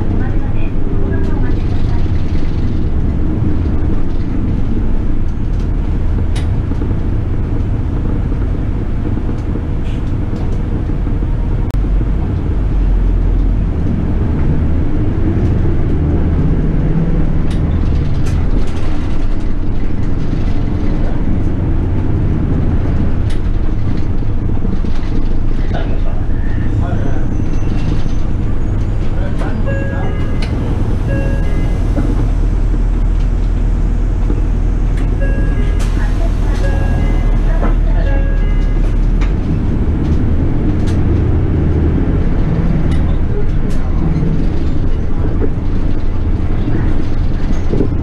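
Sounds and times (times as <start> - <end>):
bus engine and road rumble: 0.0 - 48.0.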